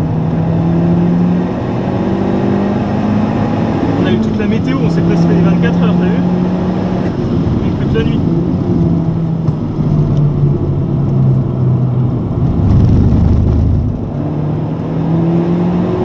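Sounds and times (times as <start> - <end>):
car engine from inside cabin: 0.0 - 16.0
low rumble: 7.1 - 14.5.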